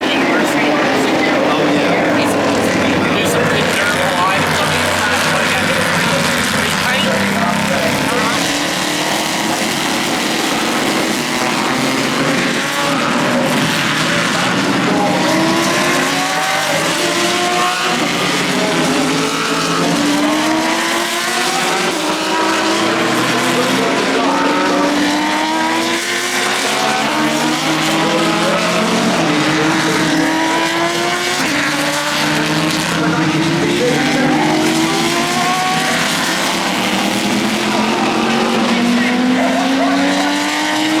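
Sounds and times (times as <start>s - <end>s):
race cars passing: 0.0s - 41.0s.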